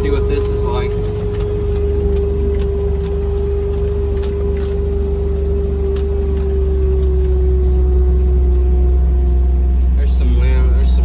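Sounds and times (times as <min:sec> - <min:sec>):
farm vehicle engine rumble and whine: 0:00.0 - 0:11.0
light clicks over ground: 0:00.0 - 0:11.0.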